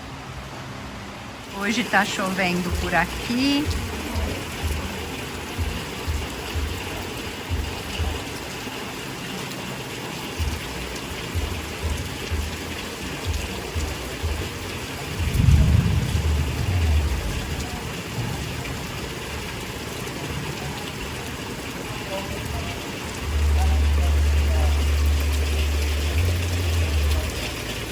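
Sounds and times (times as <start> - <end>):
rain falling: 0.0 - 27.9
low thumps: 15.1 - 17.6
low rumble: 15.1 - 18.6.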